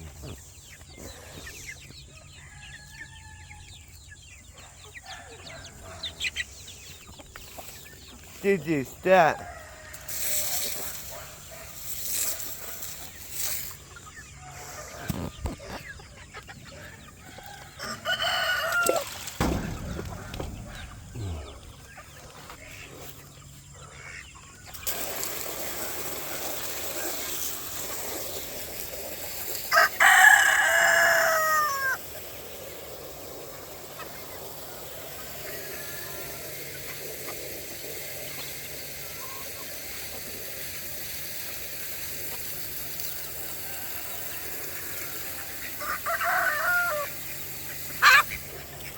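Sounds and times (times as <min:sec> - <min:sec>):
rooster crowing: 0:17.3 - 0:21.6, 0:29.7 - 0:32.0, 0:45.8 - 0:47.1.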